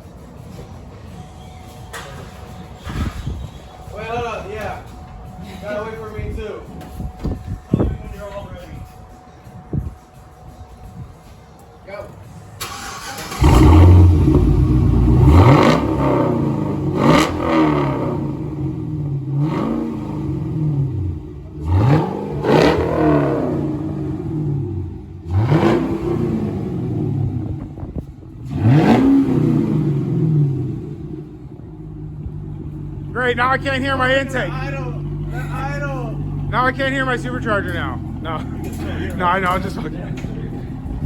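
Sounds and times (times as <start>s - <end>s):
car engine revving: 12.6s - 41.0s.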